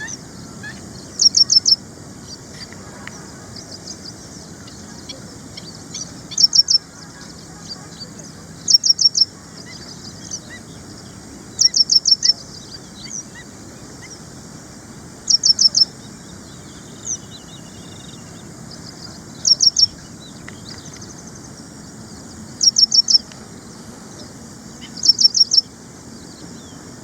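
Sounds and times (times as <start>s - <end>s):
faint bird chirps: 0.0s - 14.2s, 15.2s - 23.4s, 24.1s - 26.9s.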